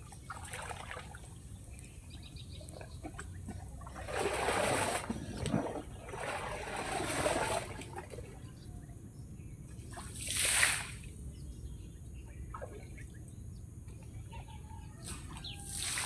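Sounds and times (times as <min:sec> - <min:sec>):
lumps splashing into water: 0:00.0 - 0:01.4, 0:02.6 - 0:08.4, 0:09.9 - 0:11.1, 0:15.1 - 0:16.0
faint bird chirps: 0:11.3 - 0:16.0.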